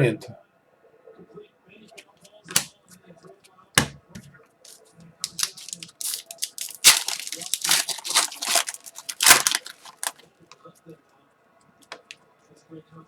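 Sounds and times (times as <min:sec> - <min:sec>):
foil wrapper tearing and crinkling: 0:05.2 - 0:10.2.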